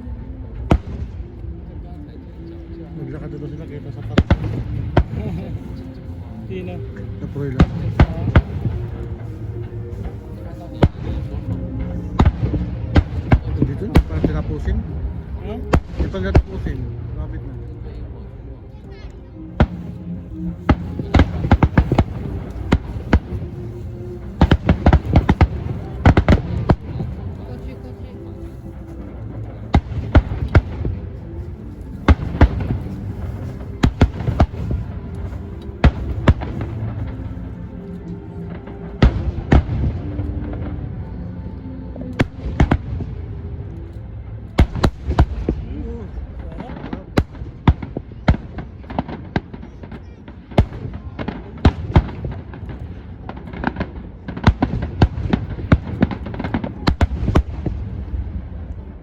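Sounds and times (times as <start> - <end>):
background music: 0.0 - 59.0
fireworks bangs: 20.6 - 27.7, 29.4 - 37.2.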